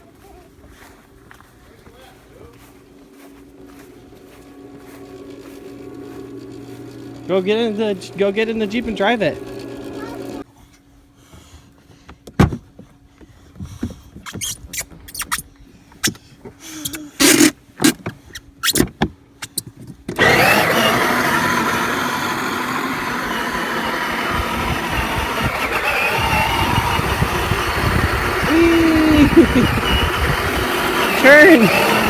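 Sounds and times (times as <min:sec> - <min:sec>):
toy car electric motor running: 0:05.0 - 0:10.4, 0:16.9 - 0:17.5, 0:20.2 - 0:32.0.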